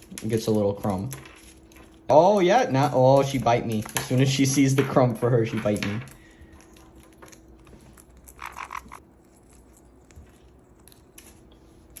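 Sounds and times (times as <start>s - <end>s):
parrots nibbling a nut: 5.6s - 12.0s.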